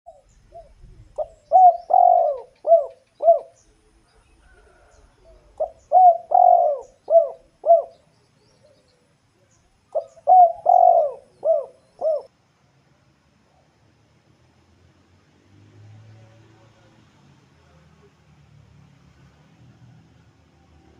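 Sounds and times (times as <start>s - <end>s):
dove cooing: 0.1s - 9.0s, 9.9s - 12.3s.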